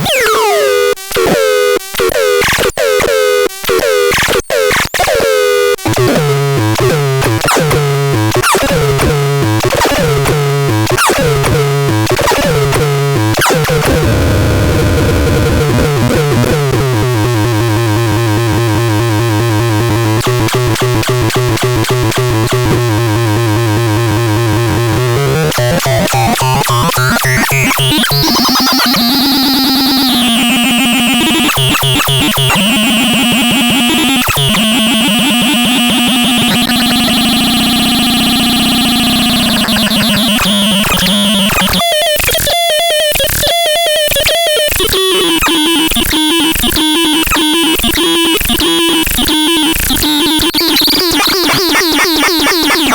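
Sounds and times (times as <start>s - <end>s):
buzzy pulsing synthesizer tone: 11.6s - 41.8s, 48.7s - 52.9s.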